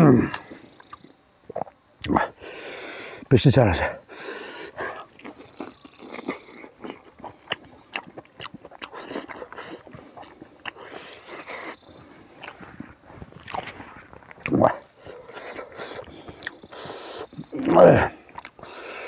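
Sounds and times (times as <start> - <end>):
person chewing and lip-smacking: 0.3 - 2.3, 5.0 - 17.6, 18.2 - 18.8.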